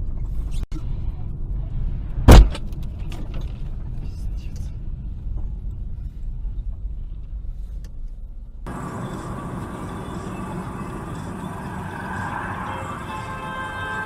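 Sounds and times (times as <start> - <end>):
car rumbling on road: 8.7 - 14.0
traffic noise: 8.7 - 14.0.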